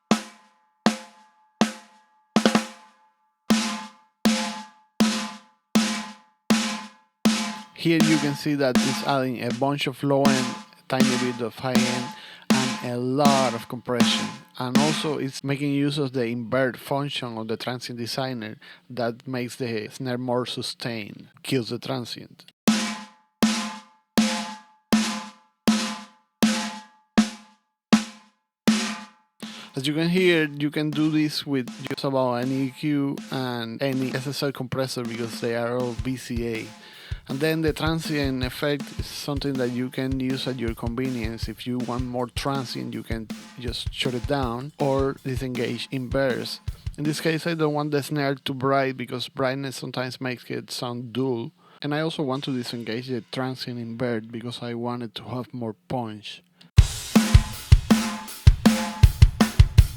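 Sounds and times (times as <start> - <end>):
snare drum hits: 0.0 - 9.7, 10.3 - 15.2, 22.7 - 29.8, 30.9 - 32.6, 35.1 - 47.2, 56.8 - 59.9.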